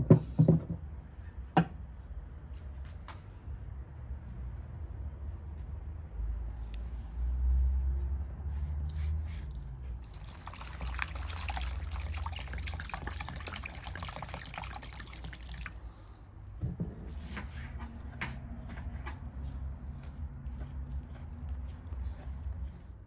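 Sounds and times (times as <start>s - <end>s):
water pouring and splashing: 8.9s - 16.2s.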